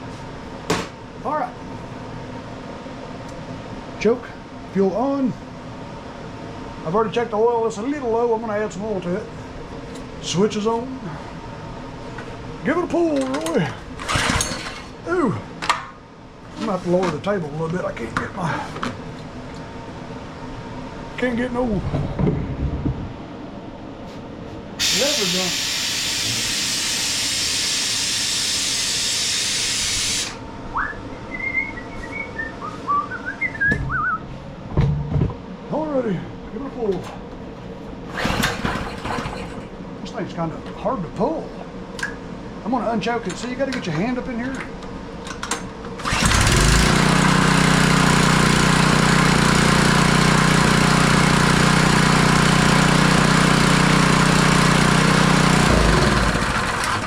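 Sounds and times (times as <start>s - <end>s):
recoil starter pull: 14.0s - 14.7s, 46.0s - 47.7s, 54.3s - 57.0s
small engine starting and running: 14.0s - 14.8s, 46.0s - 57.0s
air hissing from lift table: 24.8s - 30.4s.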